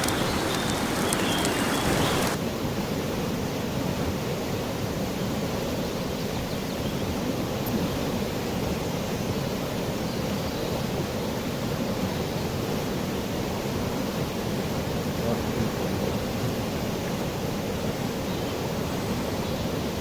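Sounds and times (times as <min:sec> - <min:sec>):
river water rushing: 0:00.0 - 0:02.4.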